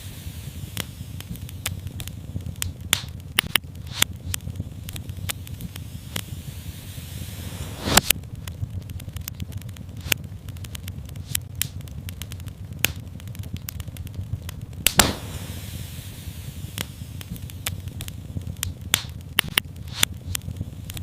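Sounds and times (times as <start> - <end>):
low rumble of flames: 0.0 - 21.0
sharp fire pops: 0.0 - 21.0
brief hiss: 5.9 - 8.1, 15.0 - 17.4.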